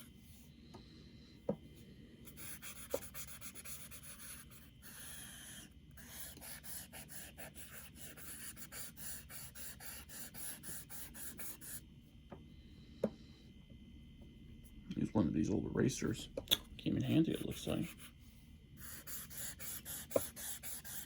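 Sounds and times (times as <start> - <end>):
eraser scratching on paper: 2.3 - 11.8, 17.1 - 18.1, 18.8 - 21.0.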